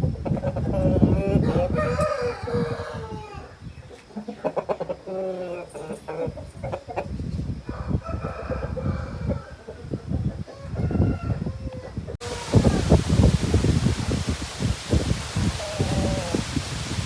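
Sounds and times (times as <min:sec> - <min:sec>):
chickens clucking: 0:00.0 - 0:17.0
rooster crowing: 0:01.3 - 0:03.6, 0:07.6 - 0:09.6, 0:10.5 - 0:13.3, 0:15.4 - 0:16.6.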